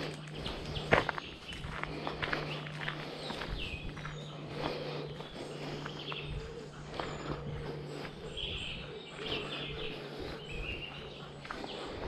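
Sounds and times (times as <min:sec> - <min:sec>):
footsteps on a path: 0:00.0 - 0:12.0
small birds chirping: 0:00.0 - 0:12.0.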